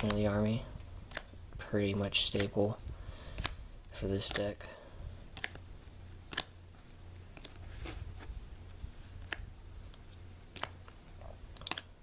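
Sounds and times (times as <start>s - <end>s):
cards flipping clicks: 0.0s - 0.4s, 1.0s - 1.4s, 2.2s - 2.7s, 3.3s - 4.6s, 5.3s - 6.6s, 7.3s - 7.6s.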